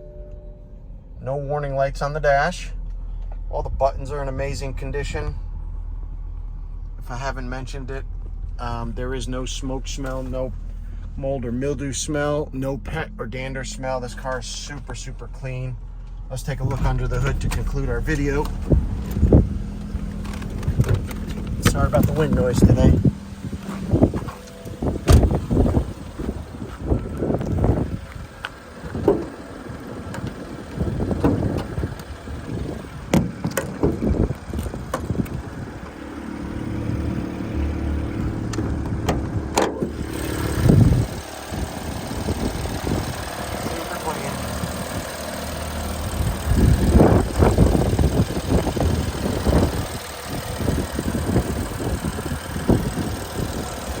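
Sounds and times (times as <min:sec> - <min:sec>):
car engine idling: 0:00.0 - 0:54.0
sharp clicks and knocks: 0:16.0 - 0:22.6, 0:28.4 - 0:29.3, 0:33.1 - 0:35.4, 0:38.5 - 0:40.0
wind buffeting microphone: 0:16.6 - 0:36.0, 0:40.4 - 0:43.9, 0:46.0 - 0:54.0.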